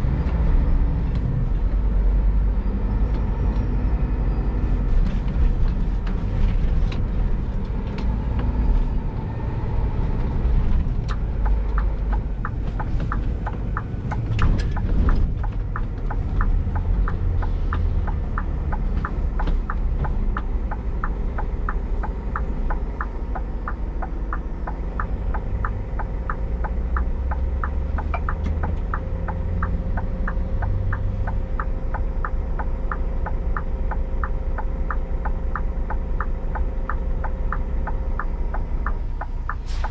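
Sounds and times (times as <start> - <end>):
truck diesel engine rumble: 0.0 - 39.9
quick steady ticking: 11.0 - 39.9.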